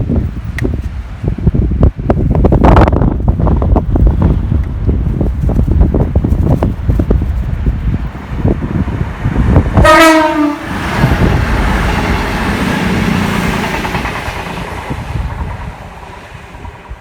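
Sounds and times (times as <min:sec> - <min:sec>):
wind buffeting microphone: 0:00.0 - 0:17.0
train rushing past: 0:01.7 - 0:17.0
train horn blast: 0:09.8 - 0:11.2.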